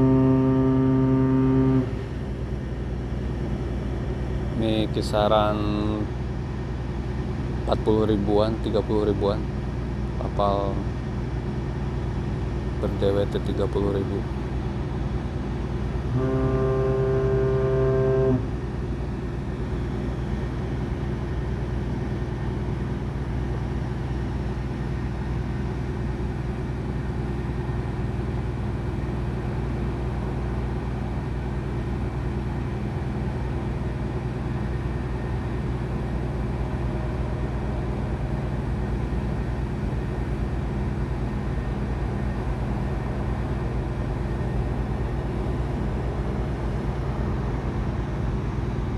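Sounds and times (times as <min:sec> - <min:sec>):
ship's horn blast: 0:00.0 - 0:03.9, 0:14.6 - 0:20.6, 0:27.4 - 0:48.8
low engine drone: 0:00.0 - 0:48.9.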